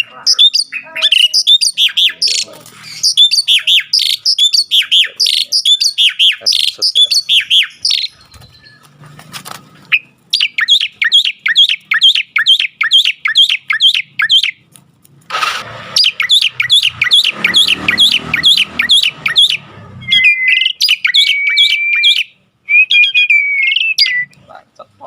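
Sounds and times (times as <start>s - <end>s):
myna chirping: 0.0s - 25.0s
short noisy burst: 15.3s - 16.7s.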